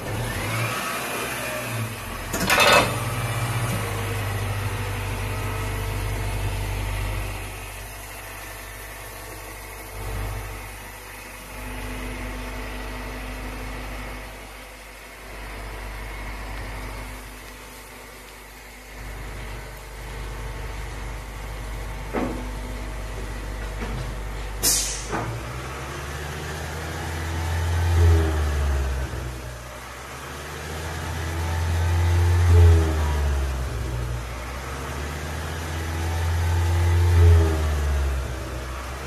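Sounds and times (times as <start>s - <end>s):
car engine running: 0.0s - 24.6s.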